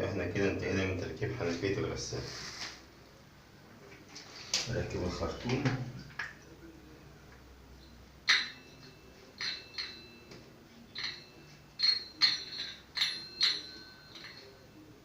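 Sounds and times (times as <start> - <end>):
metallic clinks and taps: 8.2 - 14.8.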